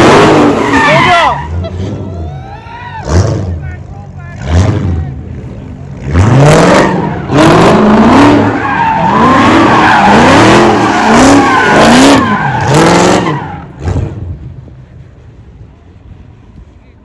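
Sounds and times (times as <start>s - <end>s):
car engine revving: 0.0s - 2.2s, 3.0s - 14.6s
tire squeal: 0.0s - 3.4s, 6.4s - 14.2s.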